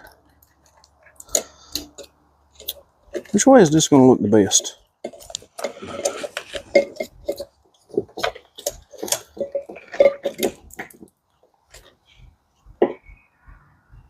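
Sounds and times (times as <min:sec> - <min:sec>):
plastic clicks and rustles: 0:05.0 - 0:12.1.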